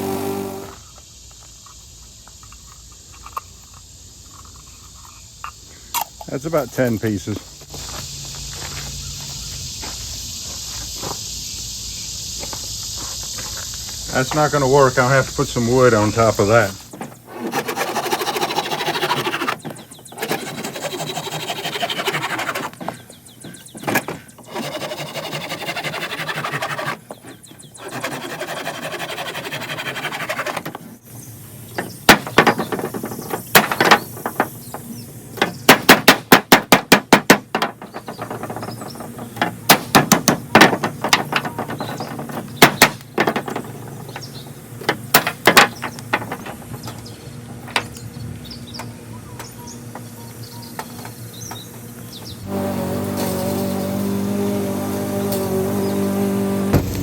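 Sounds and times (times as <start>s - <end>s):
rustling and scraping of wood: 0.0s - 11.7s, 12.4s - 49.0s, 50.8s - 57.0s
sharp wooden cracks and knocks: 16.9s - 24.6s, 31.8s - 47.0s, 56.7s - 57.0s.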